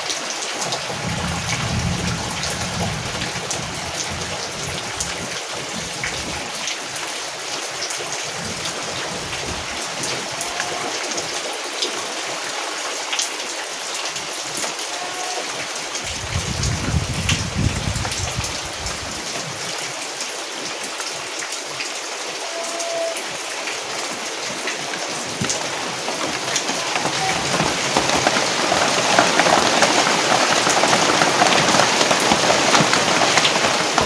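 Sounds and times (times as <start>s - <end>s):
rain pattering on surfaces: 0.0s - 34.0s
low rumble: 1.0s - 5.4s.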